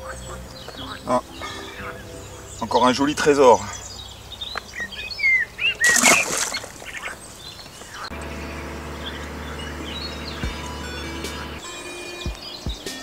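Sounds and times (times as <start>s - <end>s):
low background music drone: 0.0s - 13.0s
small birds chirping: 0.0s - 13.0s.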